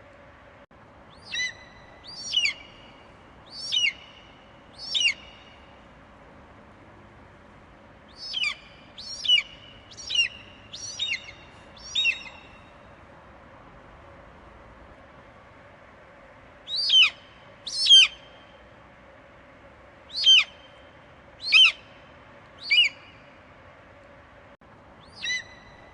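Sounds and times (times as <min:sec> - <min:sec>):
eagle screeching calls: 0:01.2 - 0:02.8, 0:03.5 - 0:04.2, 0:04.8 - 0:05.4, 0:08.2 - 0:12.5, 0:16.7 - 0:18.2, 0:20.1 - 0:20.7, 0:21.4 - 0:21.9, 0:22.6 - 0:23.2, 0:25.0 - 0:25.8.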